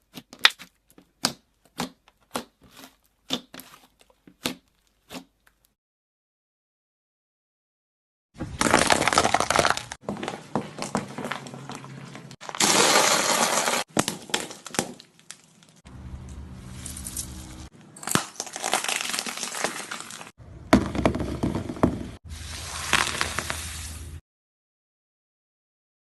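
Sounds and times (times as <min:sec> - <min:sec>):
slime squeezed by hand: 0:22.3 - 0:24.2.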